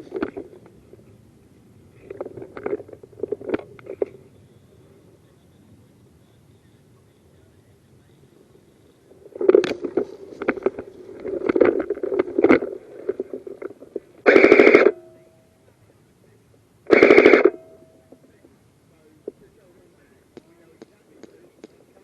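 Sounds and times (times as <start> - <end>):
airsoft gun full-auto bursts: 14.2 - 15.0, 16.9 - 17.6.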